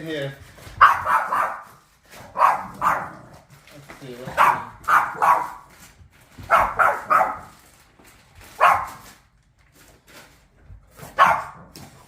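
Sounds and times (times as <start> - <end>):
dog barking: 0.8 - 3.4, 4.3 - 5.7, 6.4 - 7.6, 8.6 - 9.1, 11.1 - 11.7.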